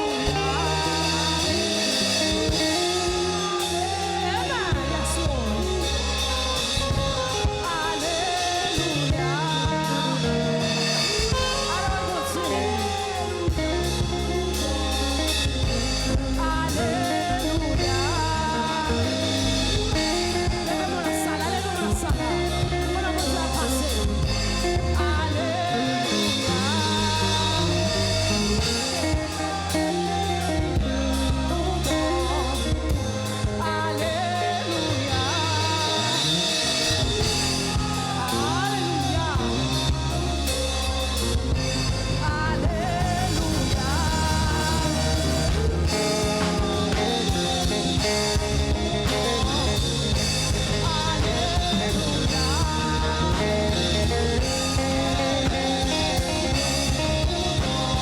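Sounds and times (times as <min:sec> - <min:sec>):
people singing: 0:00.0 - 0:58.0
worship band playing: 0:00.0 - 0:58.0.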